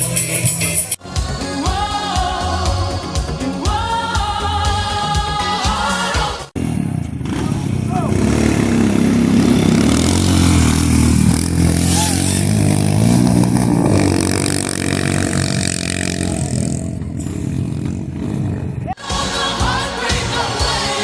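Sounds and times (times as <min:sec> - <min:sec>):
motorcycle engine revving: 0:06.6 - 0:19.0.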